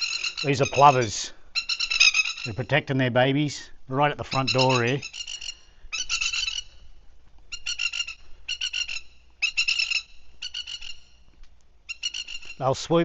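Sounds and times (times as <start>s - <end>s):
plovers rattling alarm calls: 0.0s - 2.8s, 4.2s - 6.8s, 7.5s - 11.2s, 11.9s - 13.0s.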